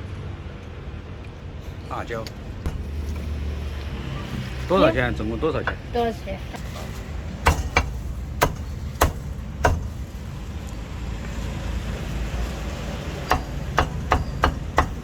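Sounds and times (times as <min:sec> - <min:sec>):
low street rumble: 0:00.0 - 0:15.0
cleaver chopping meat: 0:02.7 - 0:03.2, 0:07.4 - 0:10.2, 0:13.0 - 0:15.0.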